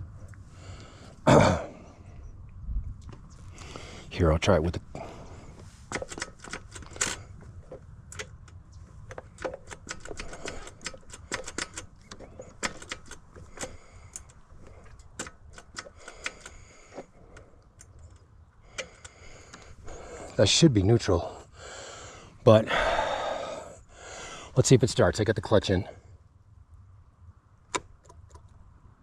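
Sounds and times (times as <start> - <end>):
light clicks and knocks: 5.6 - 20.4.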